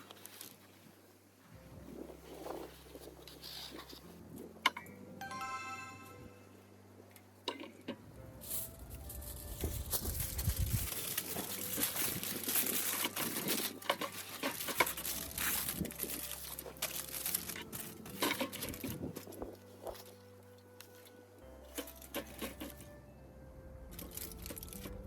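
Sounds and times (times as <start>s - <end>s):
packaging crinkling and tearing: 8.5s - 20.2s, 23.9s - 25.0s.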